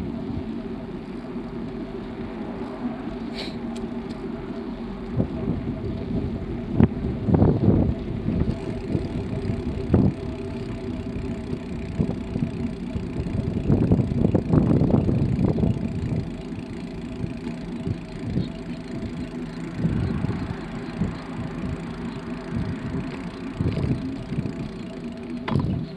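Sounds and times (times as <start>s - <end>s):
bicycle rattling: 0.0s - 25.9s
bicycle tyres and drivetrain humming: 0.0s - 25.9s
bicycle knocks: 21.8s - 25.9s.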